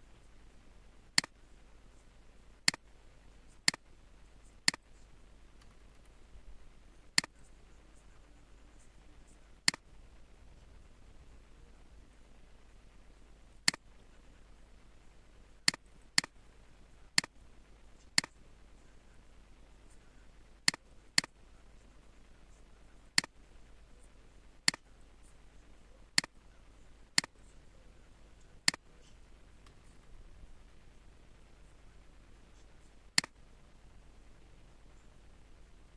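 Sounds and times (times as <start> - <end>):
low background hum: 0.0 - 35.9
computer mouse clicking: 1.2 - 1.4, 2.6 - 2.9, 3.6 - 3.8, 4.5 - 4.9, 5.6 - 6.2, 9.6 - 9.8, 13.6 - 13.8, 15.7 - 16.4, 20.7 - 21.4, 24.7 - 24.9, 28.6 - 29.9, 33.2 - 33.4.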